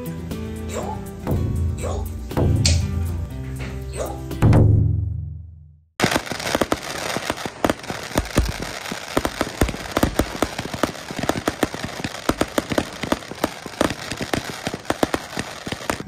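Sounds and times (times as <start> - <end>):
fireworks booms: 6.0 - 16.0
fireworks crackling pops: 6.0 - 16.0
steady hiss: 6.0 - 16.0.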